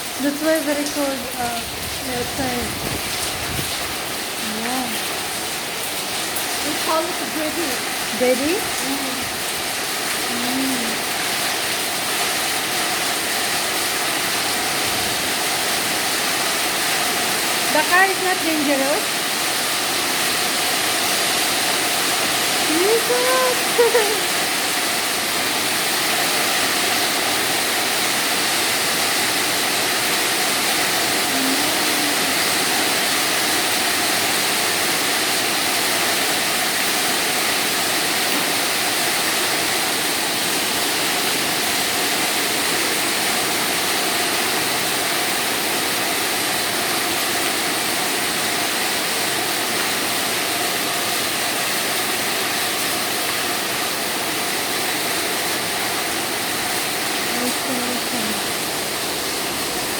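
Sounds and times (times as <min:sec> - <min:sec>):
heavy hail and rain falling: 0:00.0 - 0:59.9.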